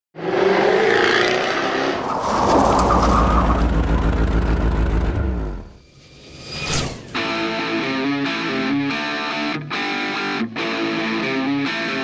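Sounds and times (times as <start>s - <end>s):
car engine revving: 0.2s - 5.8s.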